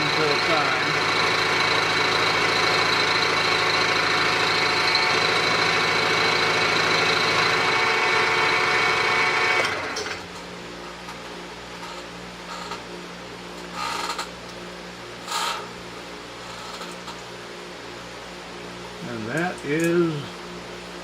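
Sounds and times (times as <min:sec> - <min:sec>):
end mill cutting metal: 0:00.0 - 0:10.3
milling machine spindle whine: 0:00.0 - 0:17.9.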